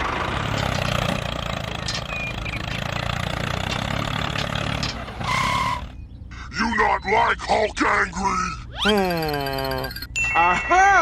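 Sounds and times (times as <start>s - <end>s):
small engine idling: 0.0s - 6.0s.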